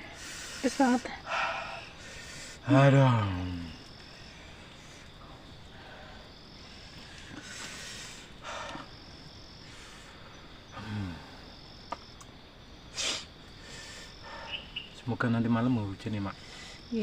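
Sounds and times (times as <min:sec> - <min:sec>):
forest insects chirring: 0:00.0 - 0:17.0
person breathing out hard: 0:05.7 - 0:08.9.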